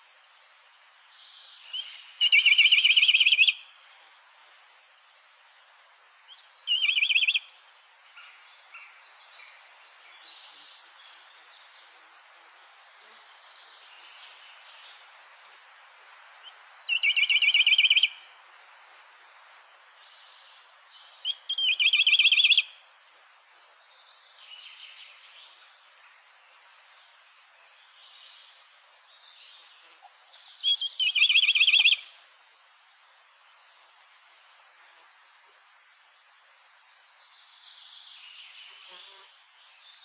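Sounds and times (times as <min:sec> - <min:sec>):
faint bird chirps: 0:01.1 - 0:04.8, 0:05.6 - 0:40.0
bird trilled call: 0:01.8 - 0:03.6, 0:06.6 - 0:07.4, 0:16.7 - 0:18.2, 0:21.3 - 0:22.7, 0:30.6 - 0:32.0.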